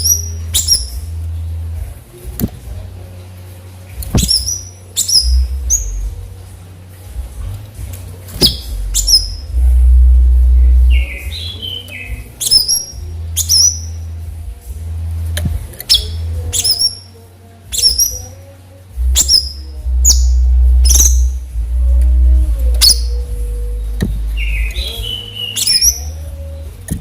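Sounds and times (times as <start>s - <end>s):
sharp high-pitched bird calls: 0.0s - 1.1s, 4.2s - 6.1s, 8.4s - 9.5s, 10.9s - 14.0s, 15.8s - 18.4s, 19.2s - 21.4s, 24.3s - 26.3s
loud low rumble: 8.5s - 12.4s, 19.0s - 25.3s.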